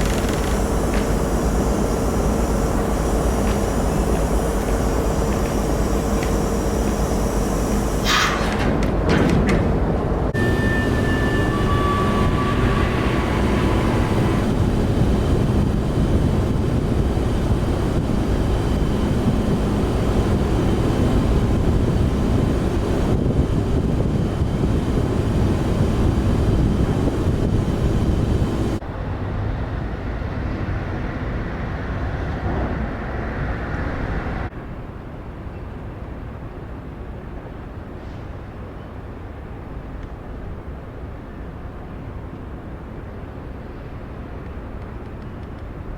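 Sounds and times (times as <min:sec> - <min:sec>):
ferry engines rumbling: 0:00.0 - 0:31.9.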